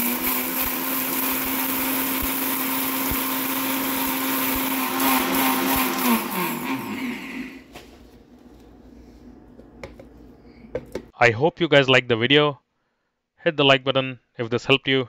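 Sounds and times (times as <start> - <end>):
mixer grinder motor running: 0.0 - 7.7.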